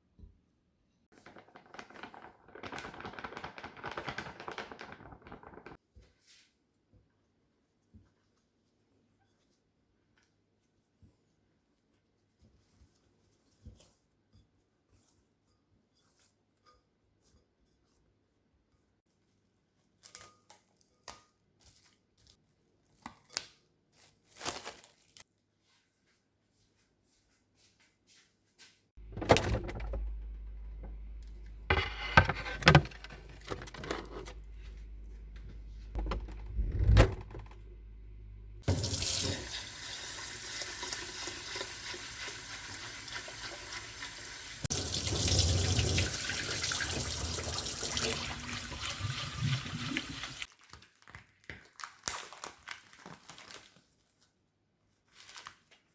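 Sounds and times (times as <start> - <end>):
kitchen clatters: 29.0 - 37.6
tap water running into sink: 38.6 - 50.5.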